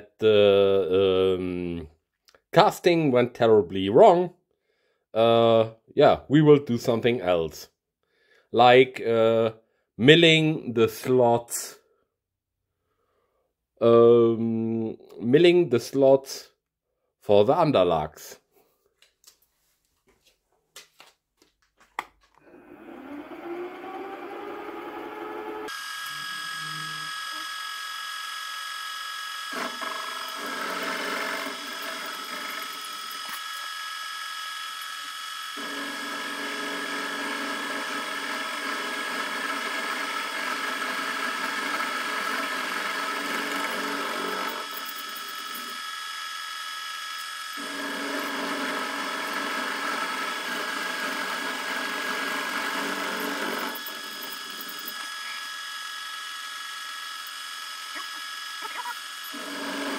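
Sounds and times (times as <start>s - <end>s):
milling machine whining: 22.4s - 59.9s.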